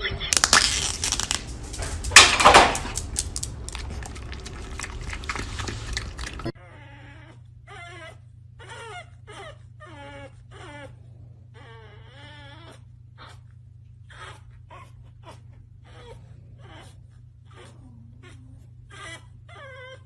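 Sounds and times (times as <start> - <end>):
dog whining: 0.0 - 20.0
clattering: 0.4 - 3.8.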